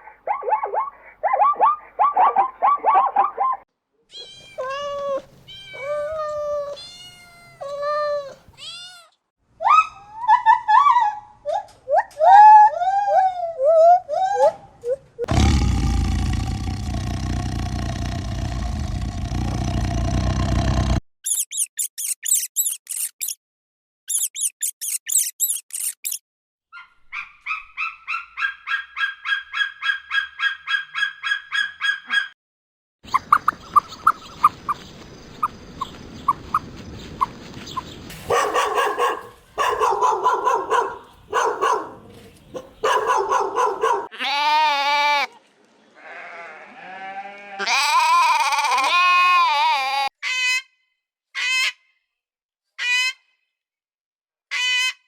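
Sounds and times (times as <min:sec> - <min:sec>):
fast high chirping: 0:24.1 - 0:26.2
farm animals calling: 0:38.1 - 0:45.4, 0:46.0 - 0:50.1.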